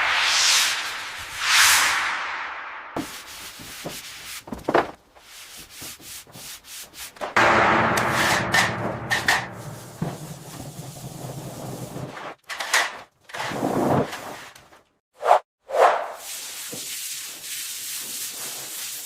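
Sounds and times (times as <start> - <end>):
rubbing and scraping on surface: 3.0 - 7.4
knocks: 7.4 - 11.5.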